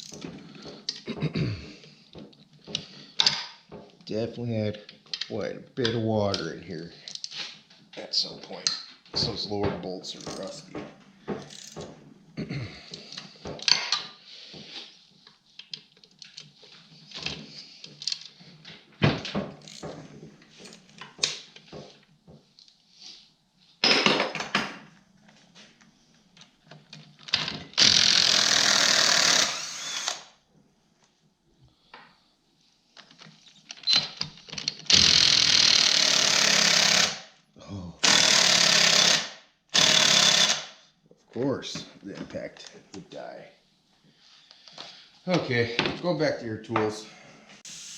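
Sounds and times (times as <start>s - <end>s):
metal tools clinking: 10.0s - 10.7s.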